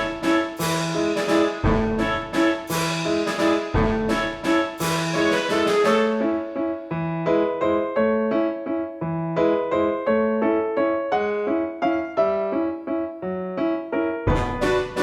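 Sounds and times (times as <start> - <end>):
keyboard playing short notes: 0.0 - 6.7.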